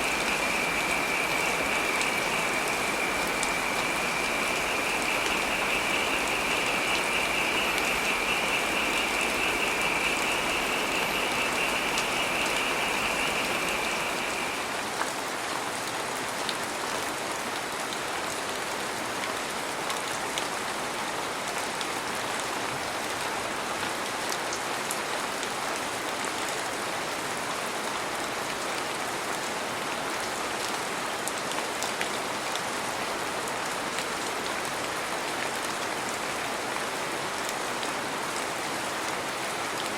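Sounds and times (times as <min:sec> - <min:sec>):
heavy rain falling: 0:00.0 - 0:39.9
high rapidly pulsing trill: 0:00.1 - 0:14.8.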